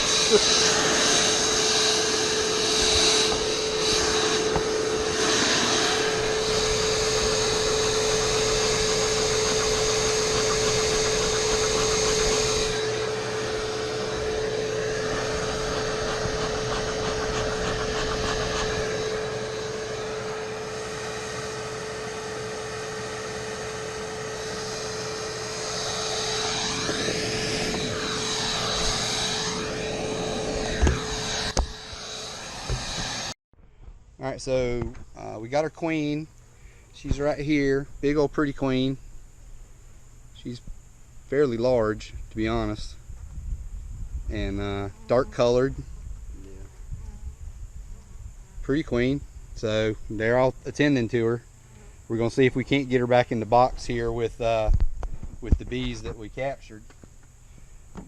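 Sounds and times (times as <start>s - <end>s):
suction hiss: 0.0s - 33.4s
vacuum motor whine: 0.0s - 33.4s, 34.9s - 58.0s.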